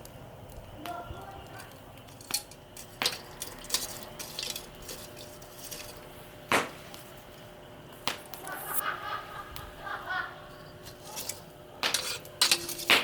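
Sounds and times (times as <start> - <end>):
metal utensils knocking cookware: 11.1 - 13.0.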